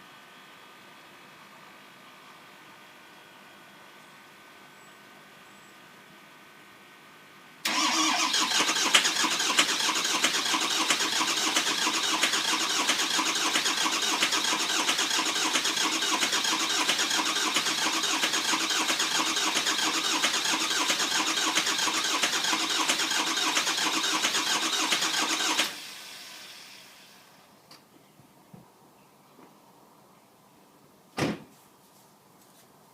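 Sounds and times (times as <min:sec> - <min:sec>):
starter cranking engine: 0:07.7 - 0:25.8.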